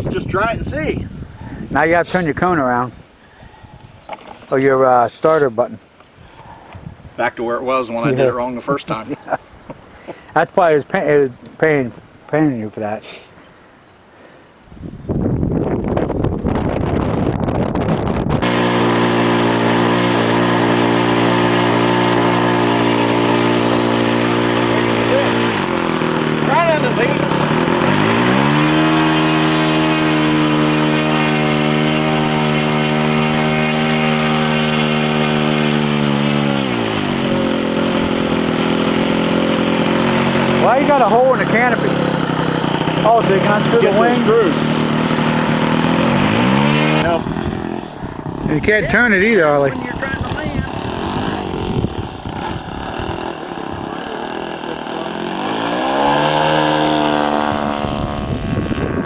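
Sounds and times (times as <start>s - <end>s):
model airplane engine: 18.4s - 59.0s.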